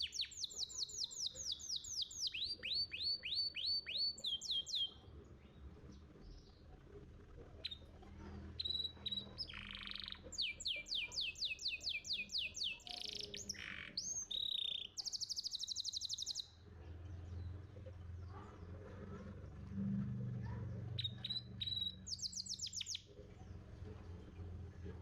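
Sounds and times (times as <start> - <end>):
canary singing: 0.0 - 5.1, 6.1 - 17.7, 20.8 - 23.7.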